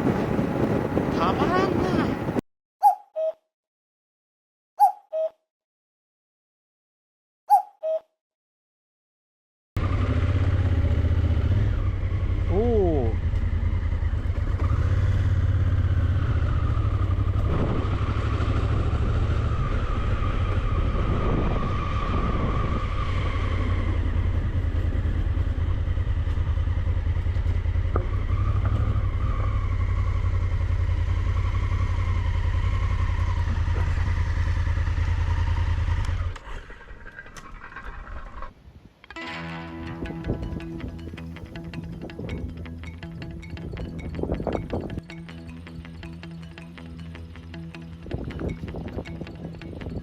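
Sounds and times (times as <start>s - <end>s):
wind rushing over microphone: 0.0s - 2.4s, 17.1s - 25.2s, 43.5s - 45.0s, 48.1s - 50.0s
motorcycle engine running: 9.8s - 38.5s, 39.3s - 50.0s.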